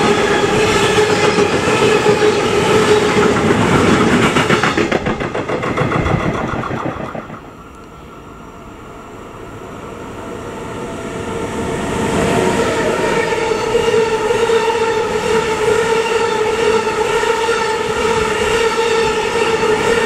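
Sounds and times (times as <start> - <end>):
train wheels rumbling on rails: 0.0 - 7.8
steady whining tone: 2.4 - 8.4.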